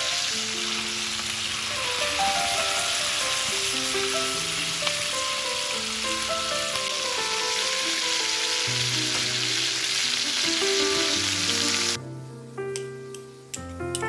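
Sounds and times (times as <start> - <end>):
chicken sizzling in a pan: 0.0 - 12.0
background music with held notes: 0.0 - 14.0.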